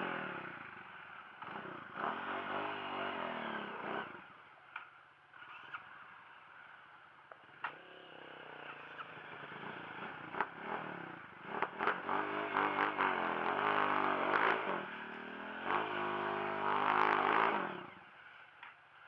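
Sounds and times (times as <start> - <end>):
dirt bike engine revving: 0.0 - 4.4, 7.4 - 18.1.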